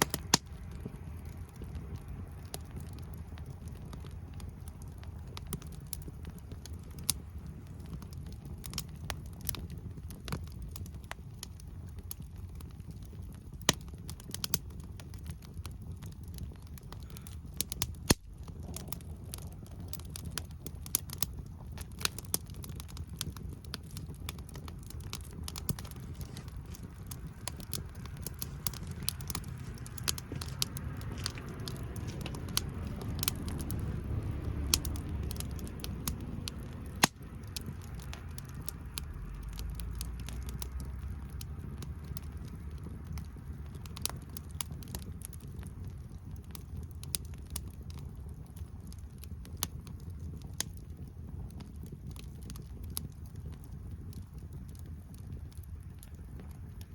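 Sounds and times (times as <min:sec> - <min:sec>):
low rumble of flame: 0:00.0 - 0:56.9
sharp fire pops: 0:00.0 - 0:56.9
wood fire crackling: 0:00.0 - 0:56.9.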